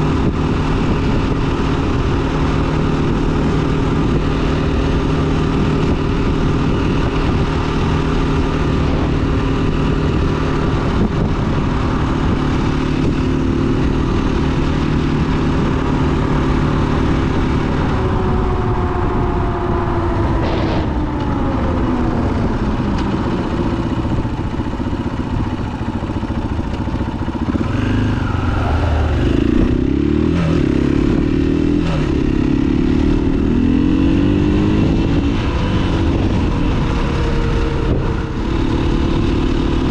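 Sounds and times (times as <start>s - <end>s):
dirt bike engine revving: 27.2s - 39.9s.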